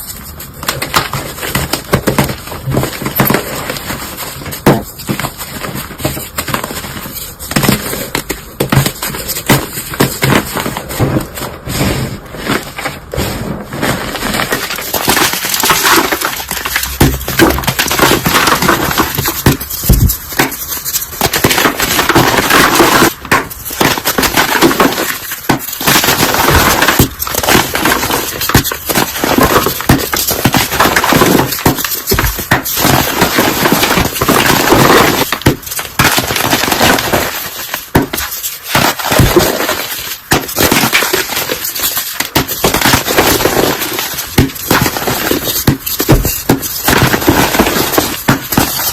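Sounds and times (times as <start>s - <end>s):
brittle things crunching and crackling: 12.4s - 48.9s.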